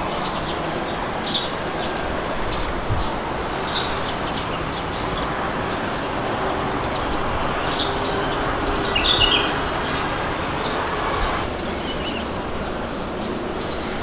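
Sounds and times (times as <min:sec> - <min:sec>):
birds chirping: 0:00.0 - 0:14.0
rushing wind: 0:00.0 - 0:14.0.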